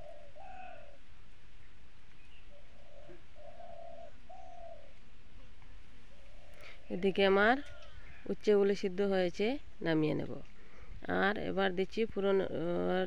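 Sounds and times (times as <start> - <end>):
bird cooing: 0.0 - 1.1, 2.4 - 5.0
low background hiss: 0.0 - 13.0.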